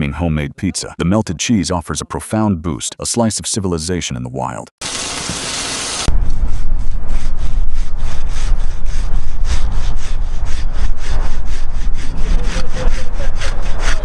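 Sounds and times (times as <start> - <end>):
saw cutting wood: 4.8 - 14.0
low rumble: 6.1 - 14.0.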